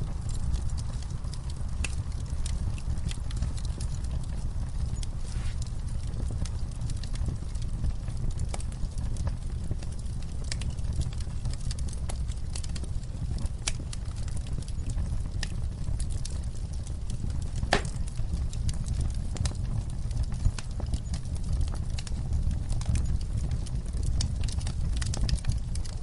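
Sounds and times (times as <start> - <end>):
low rumble of flames: 0.0 - 26.0
wood crackling and snapping: 0.1 - 26.0
fire pop: 5.0 - 5.8, 17.4 - 18.5.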